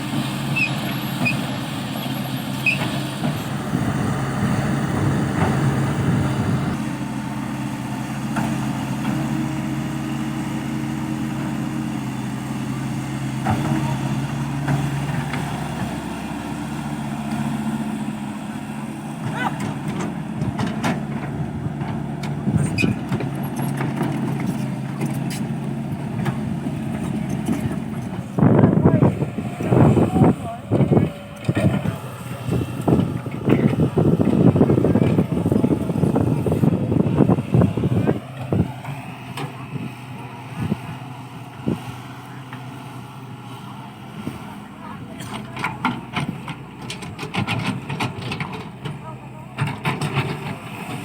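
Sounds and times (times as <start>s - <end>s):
excavator diesel engine running: 0.0s - 51.0s.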